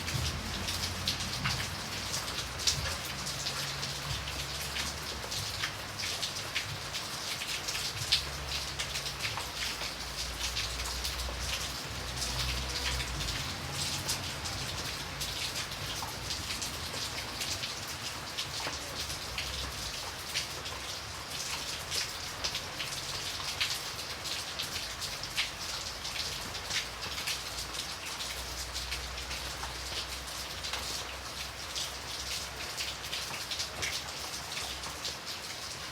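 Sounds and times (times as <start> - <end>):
rain falling: 0.0 - 35.9.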